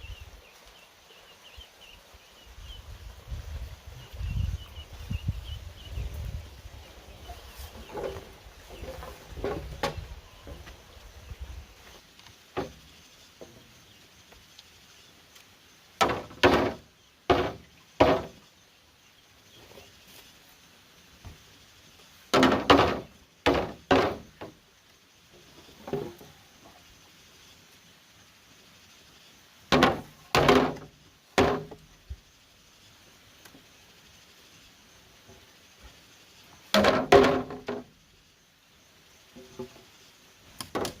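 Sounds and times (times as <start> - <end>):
tool striking bamboo: 16.0 - 18.4, 22.3 - 24.5, 29.7 - 31.8, 36.7 - 37.9, 40.6 - 41.0.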